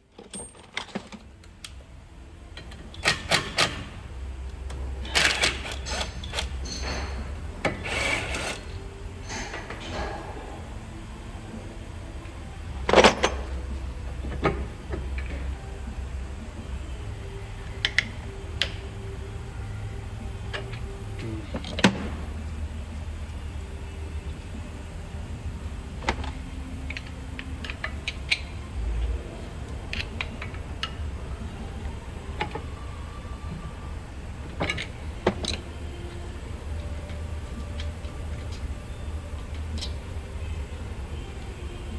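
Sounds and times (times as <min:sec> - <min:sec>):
tools and parts clanking: 0:00.1 - 0:01.3, 0:04.7 - 0:10.6, 0:12.8 - 0:15.6, 0:34.4 - 0:36.2
steady low hum: 0:01.1 - 0:41.9.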